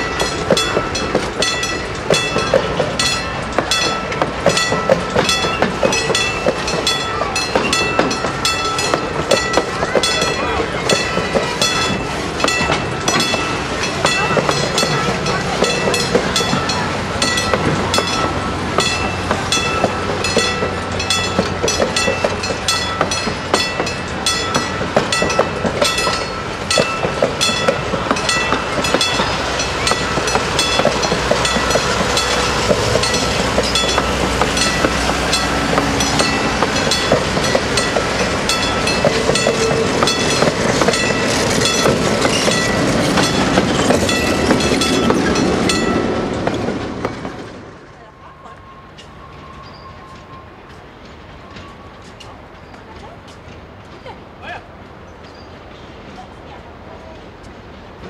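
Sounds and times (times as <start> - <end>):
low train rumble: 0.0 - 58.0
train wheels clicking over rail joints: 0.0 - 58.0
thin high ringing tones: 48.2 - 52.8.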